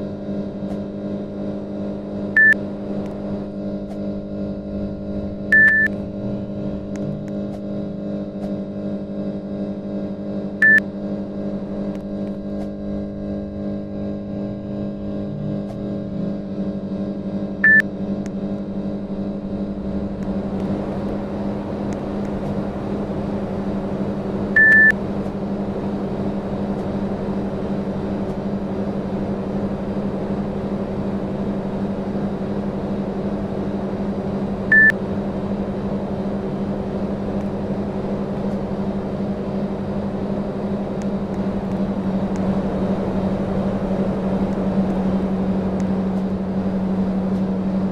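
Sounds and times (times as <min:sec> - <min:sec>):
short high beeps: 0:05.5 - 0:05.9.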